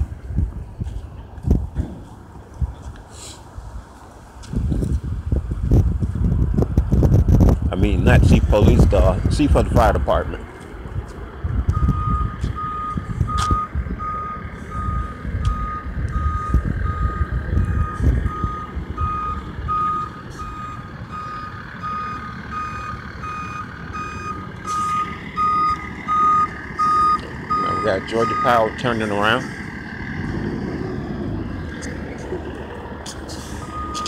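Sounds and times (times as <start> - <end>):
truck reversing alarm beeping: 11.6 - 34.0.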